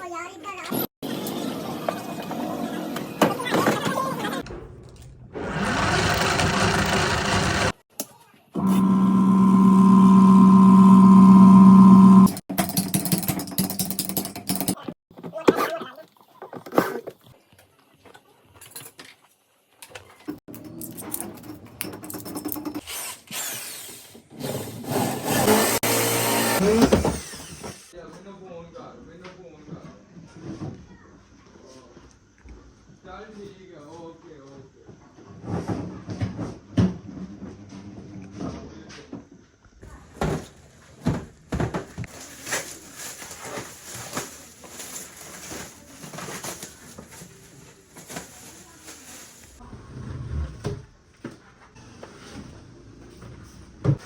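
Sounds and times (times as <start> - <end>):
motor steady tones: 5.5 - 7.8, 8.6 - 12.4
parts knocking and clattering: 12.5 - 15.3.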